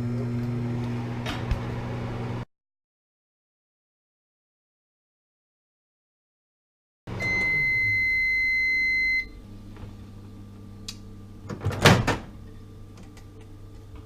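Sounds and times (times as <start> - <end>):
microwave beep: 7.1 - 9.4.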